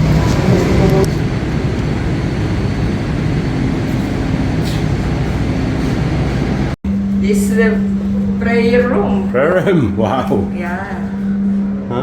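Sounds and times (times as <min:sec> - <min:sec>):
passenger train rumbling: 0:00.0 - 0:12.0
faint steady hum: 0:06.4 - 0:12.0.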